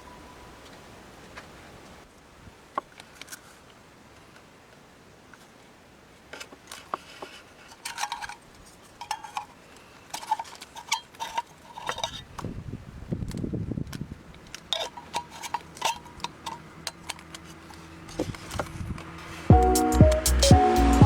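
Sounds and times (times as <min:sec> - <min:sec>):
light clinks and rattles: 0:06.6 - 0:12.5, 0:13.9 - 0:19.1.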